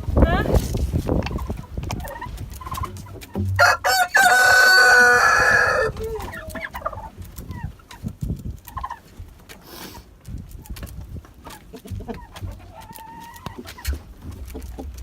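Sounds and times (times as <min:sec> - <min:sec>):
hen clucking: 0:00.3 - 0:15.0
rooster crowing: 0:03.6 - 0:06.0.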